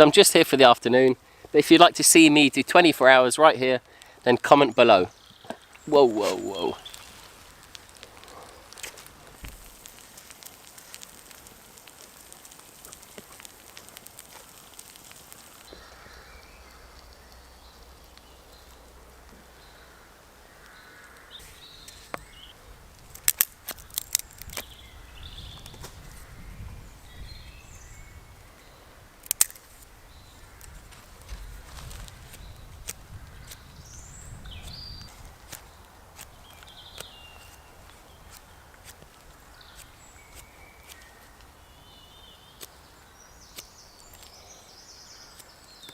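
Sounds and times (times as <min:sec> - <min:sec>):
sharp cracks or snaps: 0:05.4 - 0:24.9, 0:29.2 - 0:41.6, 0:43.4 - 0:44.5, 0:45.1 - 0:45.9.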